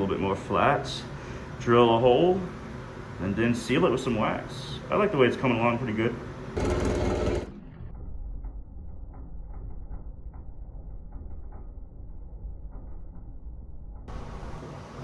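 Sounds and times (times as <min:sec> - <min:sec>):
drill boring through metal: 0:06.6 - 0:07.6.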